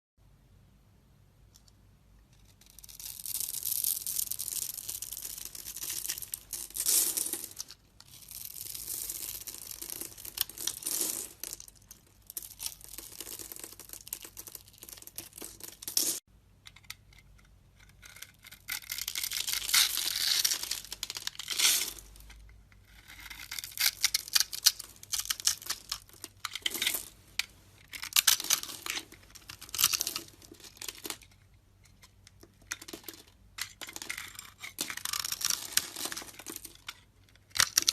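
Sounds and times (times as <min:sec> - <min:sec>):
blade carving soap: 0:17.1 - 0:26.8.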